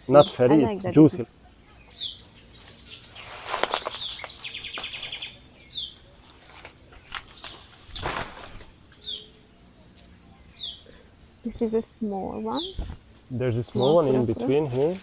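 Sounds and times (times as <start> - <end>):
rapid bird trill: 0.0 - 6.2
high insect drone: 0.0 - 15.0
falling bird chirps: 0.1 - 9.4, 10.2 - 15.0
rustling in dry vegetation: 2.1 - 15.0.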